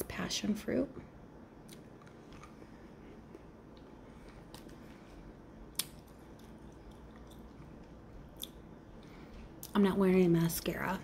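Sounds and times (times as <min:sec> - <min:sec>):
person chewing gummy candy: 0:01.6 - 0:04.9, 0:05.6 - 0:08.6.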